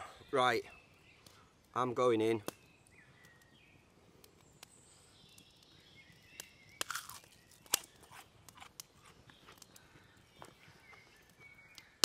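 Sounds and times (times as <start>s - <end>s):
crunchy fritter being chewed: 6.8s - 9.7s.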